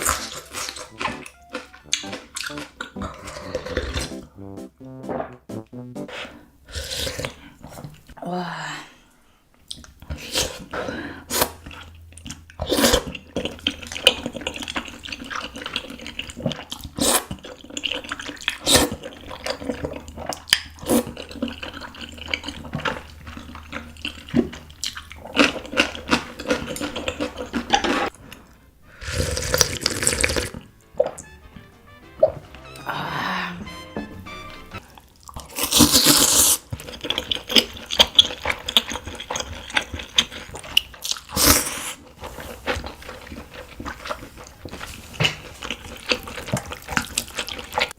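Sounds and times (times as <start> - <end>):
chewing: 0.0 - 4.1, 9.6 - 31.2, 34.8 - 47.9
slurping broth and noodles: 12.6 - 31.3, 34.8 - 47.9.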